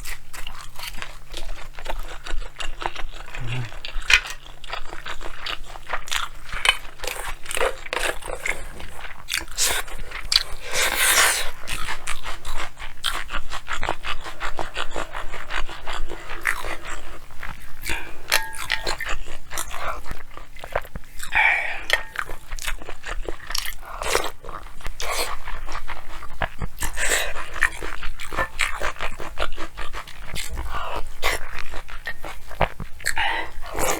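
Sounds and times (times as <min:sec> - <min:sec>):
chewing food close up: 0:00.0 - 0:33.9
wet mouth clicks: 0:03.3 - 0:04.4, 0:17.9 - 0:19.2.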